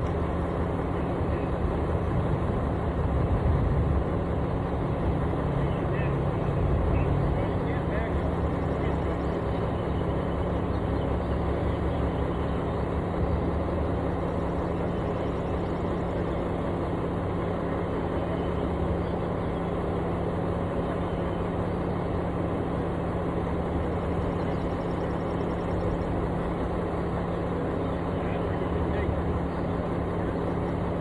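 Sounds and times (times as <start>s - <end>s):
diesel engine running steadily: 0.0s - 31.0s.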